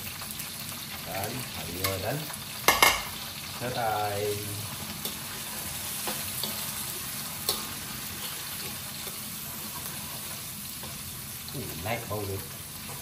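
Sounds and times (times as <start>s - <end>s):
food sizzling in hot oil: 0.0s - 13.0s
metal spatula scraping a pan: 4.7s - 11.2s.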